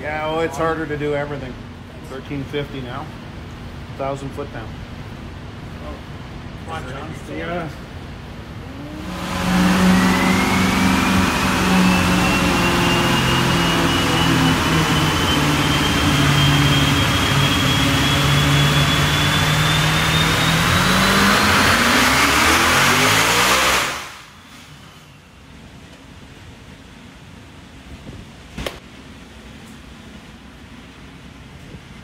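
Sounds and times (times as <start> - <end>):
faint background hum: 0.0 - 9.2
engine at full throttle with whine: 8.4 - 25.9.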